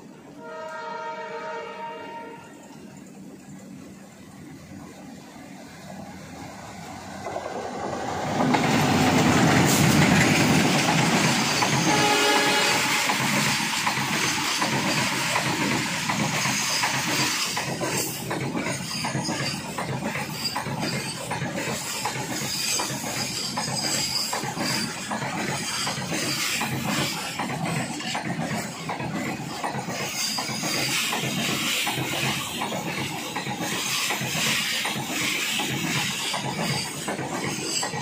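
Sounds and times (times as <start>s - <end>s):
freight train wheels rushing and clattering: 2.7s - 38.0s.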